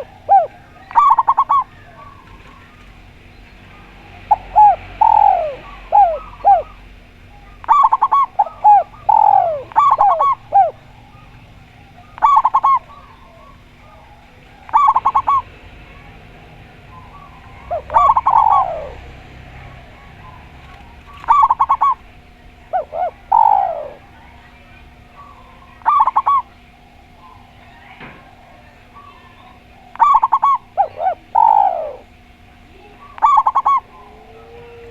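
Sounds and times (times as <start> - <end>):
doves cooing: 0.0 - 34.9.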